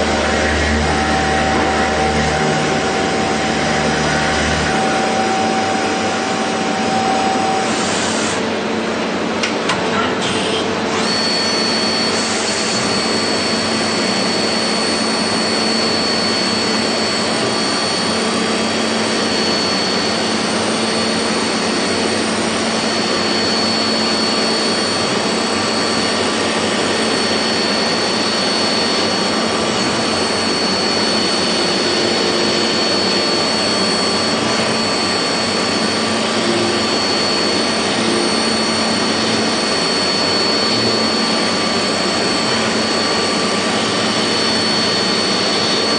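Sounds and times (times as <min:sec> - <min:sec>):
low machine hum: 0:00.0 - 0:07.8
high machine whine: 0:00.0 - 0:45.9.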